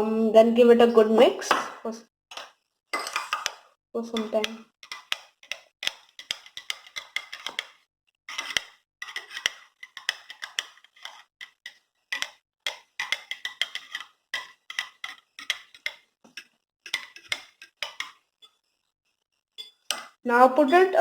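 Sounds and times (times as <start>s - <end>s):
spoon clinking against cup: 19.6s - 20.1s.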